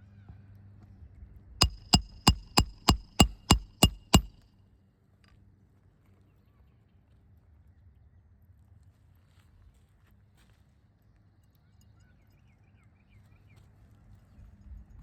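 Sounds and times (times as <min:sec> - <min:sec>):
hammer striking metal: 0:01.6 - 0:04.4.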